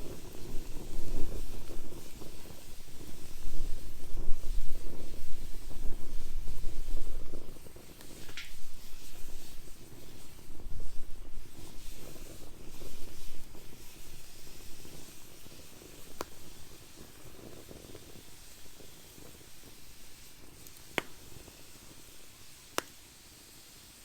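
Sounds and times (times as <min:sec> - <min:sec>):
wood fire crackling: 0:00.0 - 0:24.0
sharp pop from fire: 0:04.6 - 0:10.1, 0:14.8 - 0:19.8, 0:20.4 - 0:21.6, 0:22.7 - 0:23.1.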